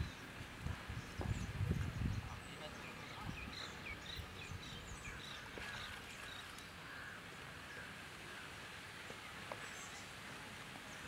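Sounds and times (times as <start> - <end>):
birds chirping: 0.0 - 8.5
outdoor ambience: 0.0 - 11.0.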